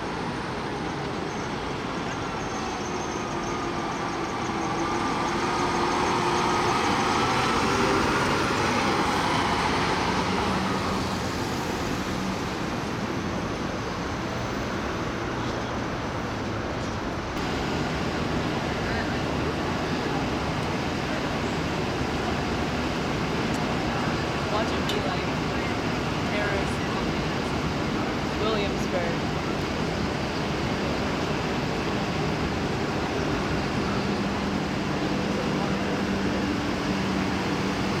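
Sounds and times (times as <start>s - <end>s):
vehicle passing on street: 3.2s - 13.8s.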